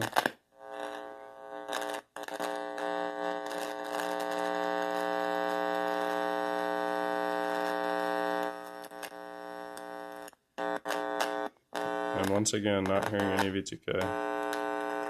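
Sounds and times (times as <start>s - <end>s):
clicks and crackles: 0.0s - 1.0s, 8.4s - 15.0s
amplifier electrical buzz: 0.0s - 15.0s.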